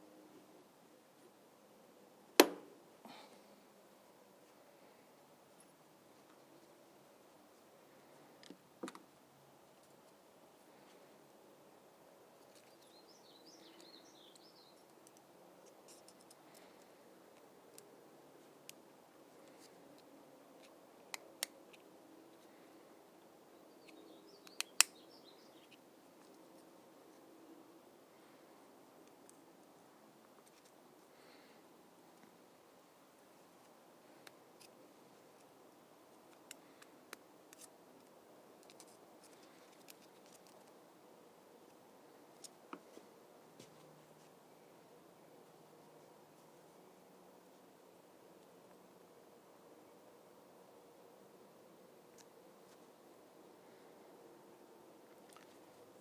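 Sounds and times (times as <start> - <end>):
small sharp clicks: 23.8 - 25.0.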